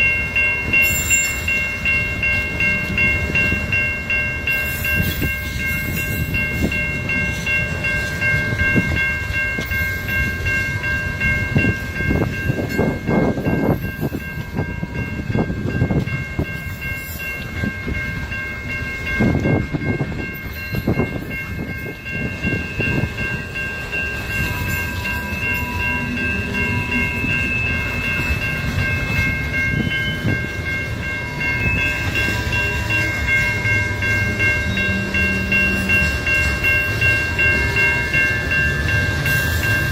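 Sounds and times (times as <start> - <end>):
train wheels rumbling on rail: 0.0 - 39.9
clacks at rail joints: 4.5 - 10.5.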